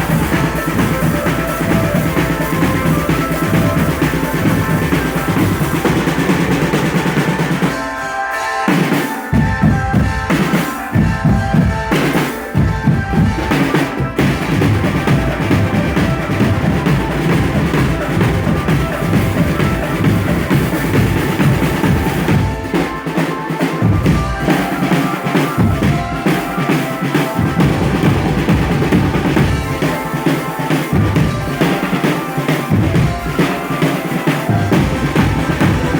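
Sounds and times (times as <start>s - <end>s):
bass drums beating: 0.0s - 7.6s, 12.6s - 22.9s
marching drum band playing: 0.0s - 8.1s, 8.7s - 35.9s.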